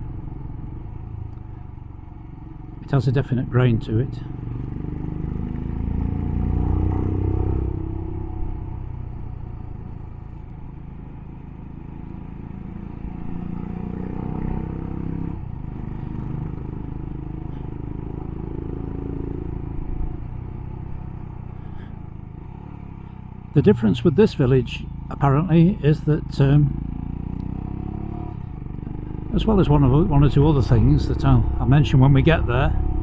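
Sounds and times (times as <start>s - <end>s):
motorcycle engine accelerating: 0.0s - 33.0s
wind and road rumble: 0.0s - 33.0s.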